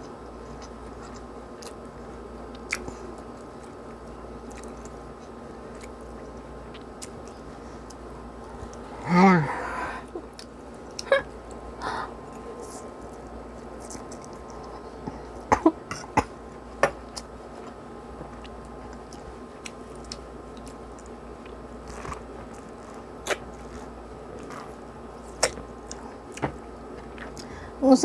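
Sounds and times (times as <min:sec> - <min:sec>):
steady hum: 0:00.0 - 0:28.0
person chewing noodles: 0:00.3 - 0:08.8, 0:18.3 - 0:27.5.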